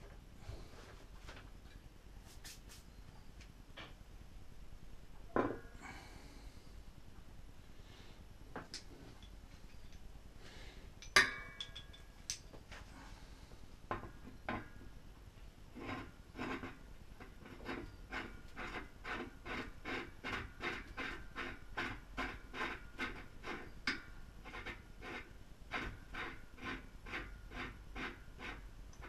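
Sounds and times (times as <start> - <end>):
metal clinks and knocks: 11.0 - 12.5.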